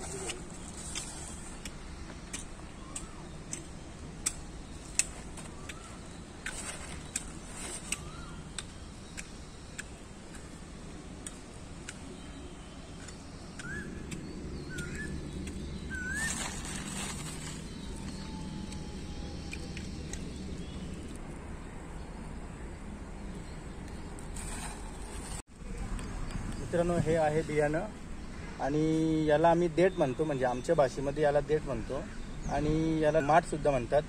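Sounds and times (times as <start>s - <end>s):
short rising bird chirps: 14.6s - 19.7s.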